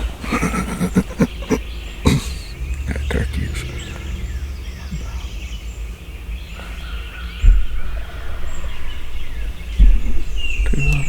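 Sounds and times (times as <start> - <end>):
songbirds chirping: 0.0 - 11.0
steady low rumble: 0.3 - 6.4.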